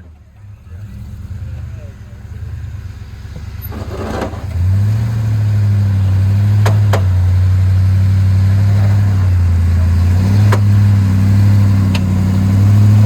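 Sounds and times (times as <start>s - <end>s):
off-road engine pulling: 0.0s - 13.0s
sharp knocks: 6.6s - 7.2s.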